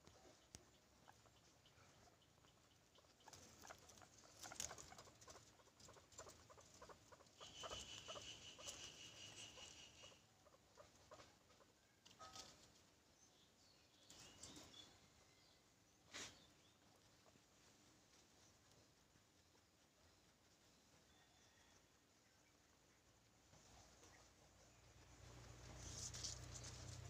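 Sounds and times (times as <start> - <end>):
guinea pig high-pitched call: 2.4 - 12.5
small clicks and rustles: 3.2 - 7.0, 25.1 - 27.0.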